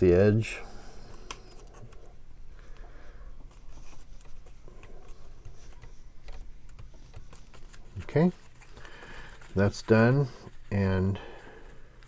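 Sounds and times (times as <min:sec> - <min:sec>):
paper cardstock rustling and clicking: 0:03.4 - 0:10.8.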